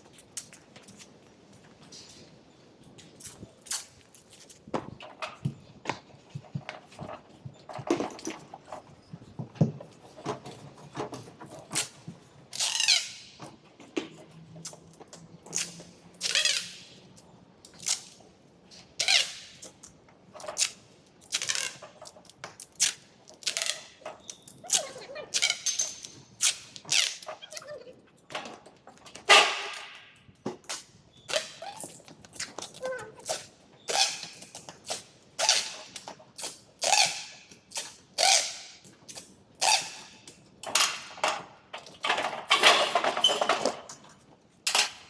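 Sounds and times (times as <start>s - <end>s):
squeaking scrapes on bodywork: 23.4s - 25.8s.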